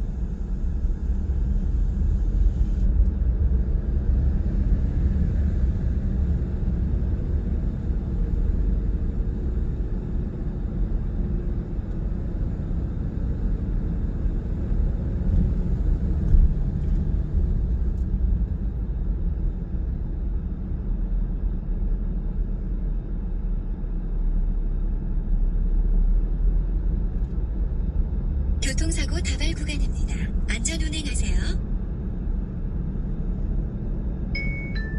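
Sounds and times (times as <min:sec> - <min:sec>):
road and engine rumble in car: 0:00.0 - 0:34.9.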